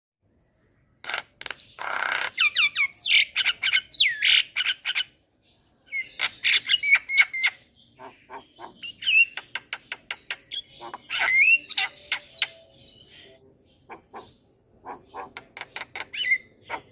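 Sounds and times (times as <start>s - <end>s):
myna squawking and whistling: 8.0s - 9.5s, 10.5s - 16.9s.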